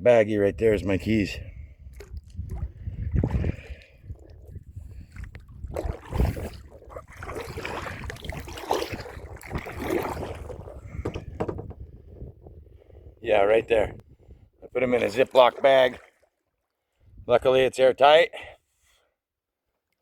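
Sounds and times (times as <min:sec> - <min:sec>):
kayak paddle splashing in water: 0:01.9 - 0:11.8, 0:15.0 - 0:16.7.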